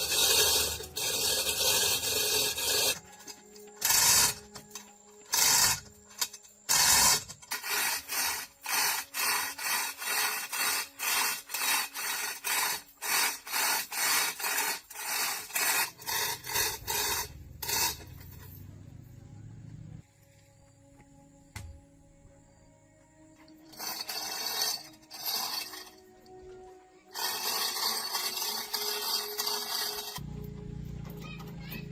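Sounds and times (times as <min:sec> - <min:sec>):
hand file rasping: 0:00.0 - 0:18.6, 0:23.7 - 0:26.4, 0:27.1 - 0:30.3.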